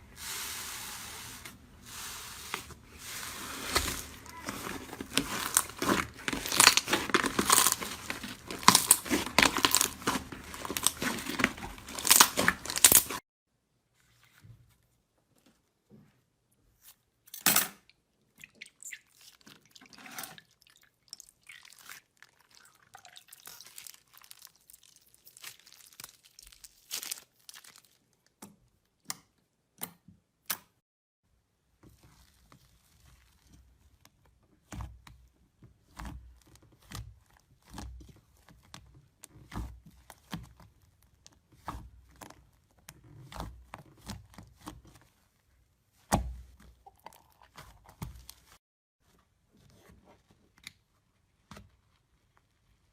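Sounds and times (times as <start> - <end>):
slime crackling crunch: 2.4 - 13.2, 21.6 - 28.4.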